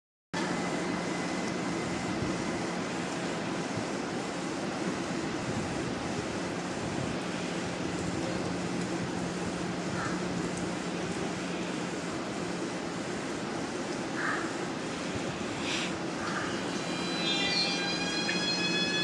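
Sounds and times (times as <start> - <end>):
ventilation fans rushing: 0.4 - 19.0
faint high whine: 16.2 - 19.0.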